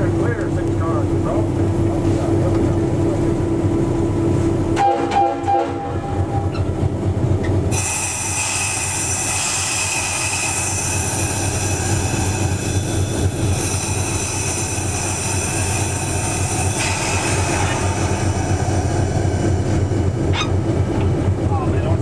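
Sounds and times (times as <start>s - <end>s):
train rumbling on rails: 0.0s - 22.0s
train wheel squeal: 4.8s - 6.8s, 7.7s - 20.8s.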